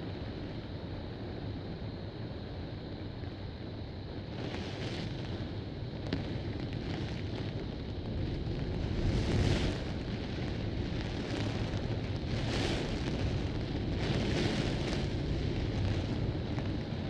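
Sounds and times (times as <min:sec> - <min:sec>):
wind buffeting microphone: 0:05.2 - 0:17.0
heavy rain: 0:06.2 - 0:17.0.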